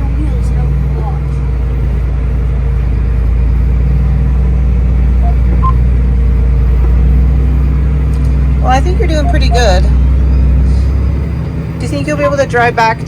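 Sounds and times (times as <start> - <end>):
tractor diesel engine droning: 0.0 - 13.0.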